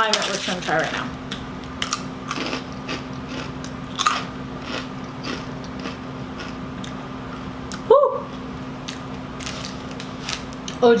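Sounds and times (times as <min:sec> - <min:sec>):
crunching tortilla chips: 0:01.6 - 0:06.6, 0:09.4 - 0:10.6.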